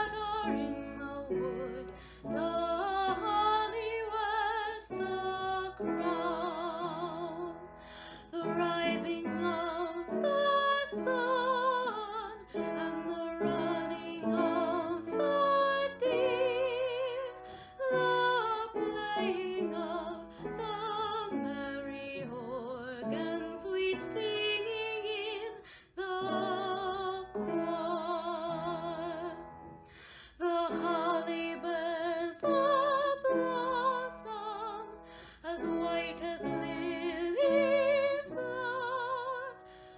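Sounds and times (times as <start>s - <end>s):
women singing a carol: 8.4s - 29.3s, 30.4s - 39.5s.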